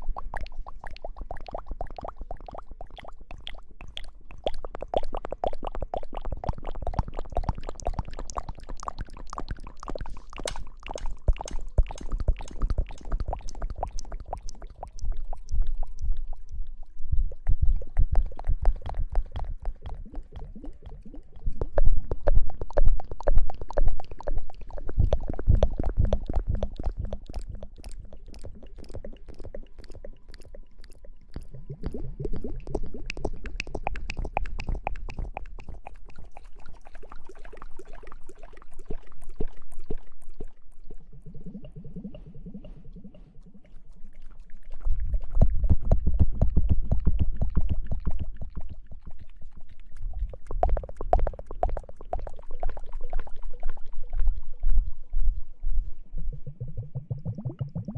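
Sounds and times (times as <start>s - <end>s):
low rumble: 54.0s - 57.9s.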